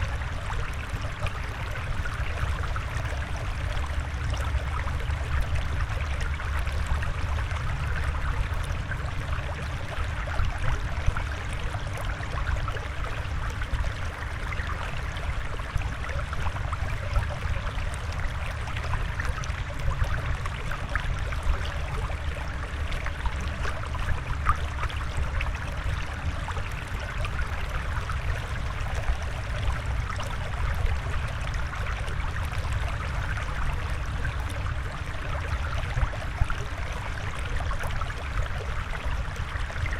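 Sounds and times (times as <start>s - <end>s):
water bubbling and trickling: 0.0s - 39.9s.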